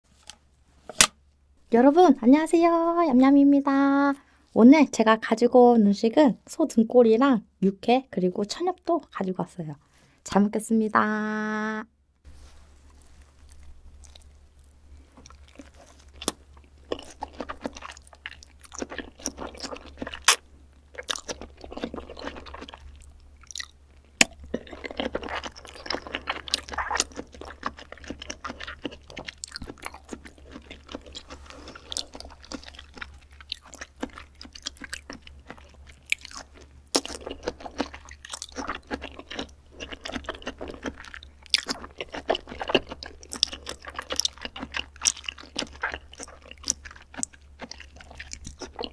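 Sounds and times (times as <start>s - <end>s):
wet squishy chewing: 12.9s - 48.9s.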